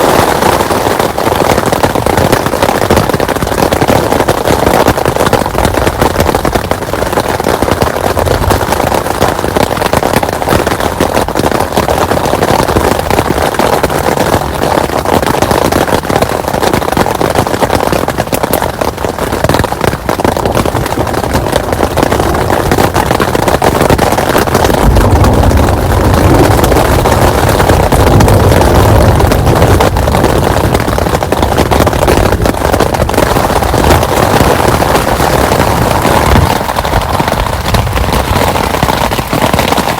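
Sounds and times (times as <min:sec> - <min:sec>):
heavy rain pouring: 0:00.0 - 0:39.9
deep rumble: 0:21.0 - 0:39.9.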